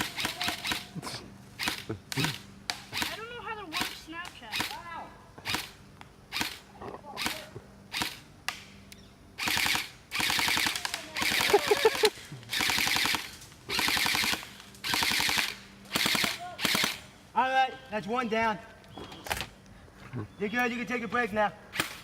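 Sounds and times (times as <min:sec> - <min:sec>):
rapid automatic airsoft fire: 0:00.0 - 0:00.9, 0:07.2 - 0:08.2, 0:09.4 - 0:17.0
airsoft rifle shots: 0:00.0 - 0:01.0, 0:01.6 - 0:08.8, 0:09.4 - 0:17.1, 0:21.7 - 0:22.0.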